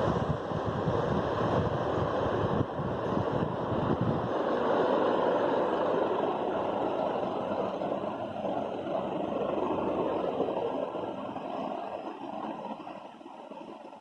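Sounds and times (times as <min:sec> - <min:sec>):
ceiling fan air rushing: 0:00.0 - 0:14.0
fan draught buffeting microphone: 0:00.0 - 0:14.0.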